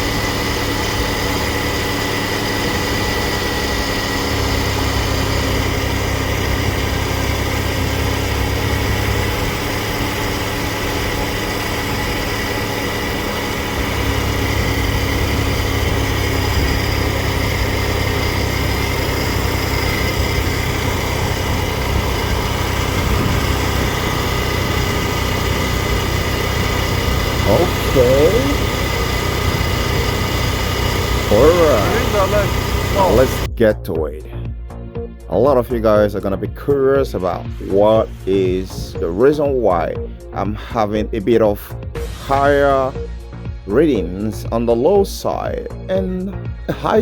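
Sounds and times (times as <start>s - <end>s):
air conditioning high whine: 0.0s - 33.5s
car engine idling: 0.0s - 36.3s, 37.1s - 47.0s.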